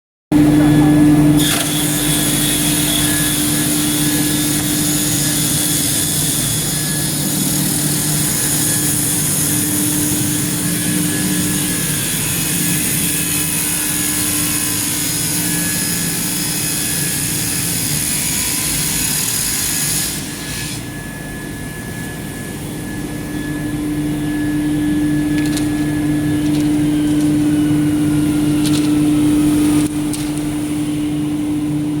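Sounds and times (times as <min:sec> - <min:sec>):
sawing machine motor hum: 0:00.7 - 0:21.2, 0:24.2 - 0:31.2
saw blades hissing through wood: 0:01.4 - 0:21.0.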